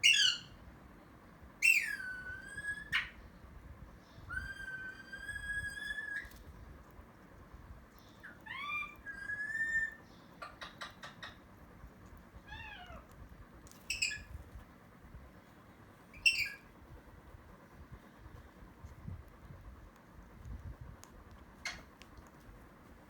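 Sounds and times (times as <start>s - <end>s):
meow-like calls: 8.4s - 10.0s, 12.4s - 13.1s.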